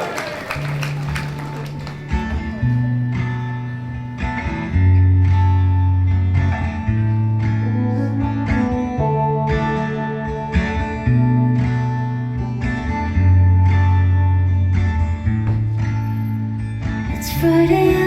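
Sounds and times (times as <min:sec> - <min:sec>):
slow instrumental guitar: 0:01.0 - 0:18.0.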